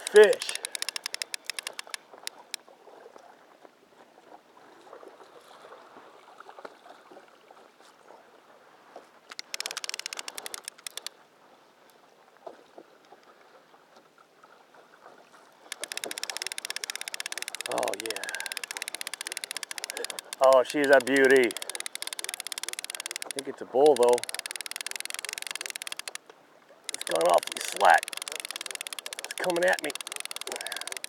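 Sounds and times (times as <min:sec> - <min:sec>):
fishing reel clicking: 0:00.0 - 0:02.6, 0:09.3 - 0:11.1, 0:15.7 - 0:26.2, 0:26.9 - 0:31.0
water lapping around boat: 0:00.0 - 0:31.0.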